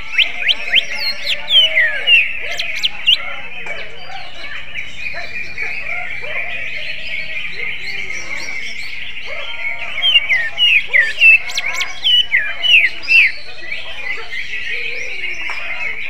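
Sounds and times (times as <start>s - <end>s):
bird singing sharp descending notes: 0.0s - 3.5s, 6.9s - 13.8s
background bird chatter: 0.0s - 16.0s.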